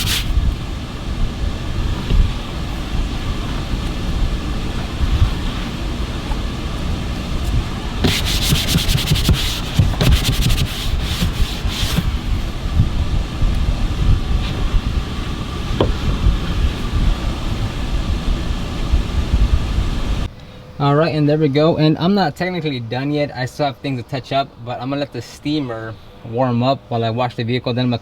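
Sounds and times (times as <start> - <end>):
scrubbing strokes on a surface: 0.0 - 0.6, 1.4 - 12.5
low rumble: 0.0 - 20.3.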